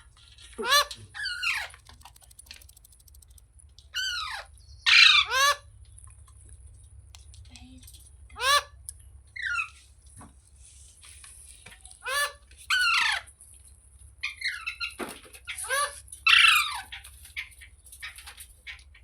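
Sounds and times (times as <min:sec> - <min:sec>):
parrot screeching: 0:04.0 - 0:05.6.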